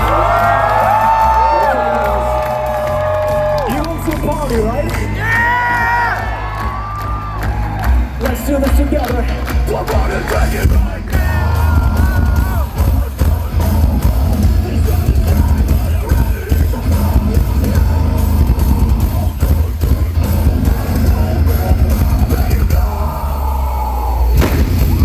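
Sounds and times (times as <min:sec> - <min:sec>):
metalcore electronic band music: 0:00.0 - 0:25.0.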